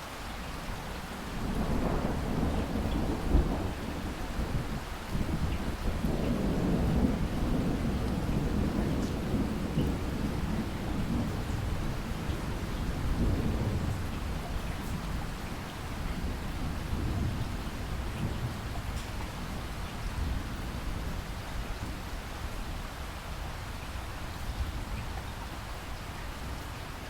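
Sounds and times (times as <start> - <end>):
steady rain: 0.0 - 27.0
thunder rumbling: 1.1 - 22.7.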